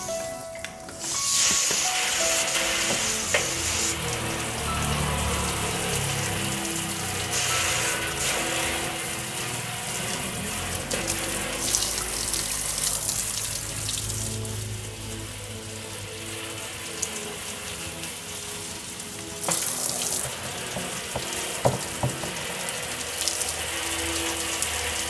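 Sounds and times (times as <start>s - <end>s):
background music: 0.0s - 25.0s
water spraying: 0.0s - 25.0s.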